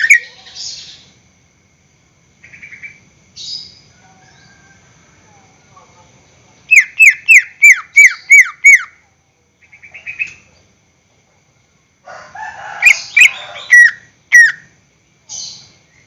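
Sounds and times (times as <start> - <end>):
bird trill: 0.0 - 1.1, 6.7 - 9.0, 12.8 - 14.7.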